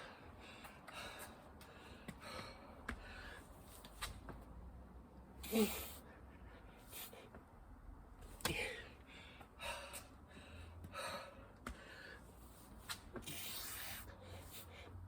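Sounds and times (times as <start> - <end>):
person breathing hard: 0.0 - 3.6, 8.4 - 12.6.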